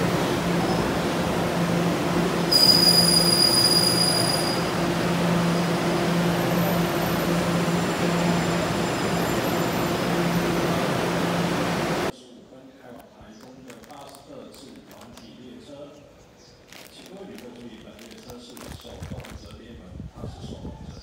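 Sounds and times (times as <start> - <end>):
train rumble: 0.0 - 12.1
high metallic squeal: 2.5 - 4.7.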